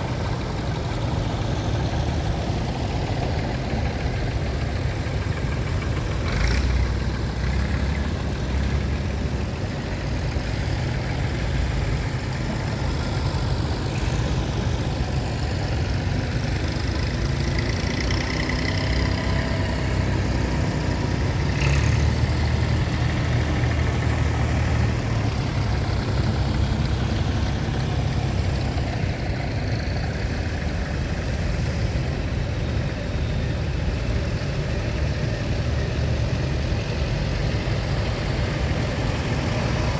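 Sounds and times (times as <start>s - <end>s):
tractor engines droning: 0.0s - 39.9s.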